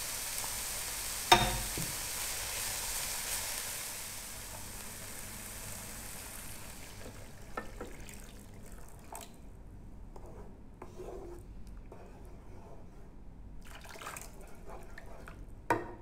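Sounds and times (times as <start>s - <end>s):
frying sizzle in a wok: 0.0s - 8.4s
wooden spatula knocks: 1.3s - 2.0s.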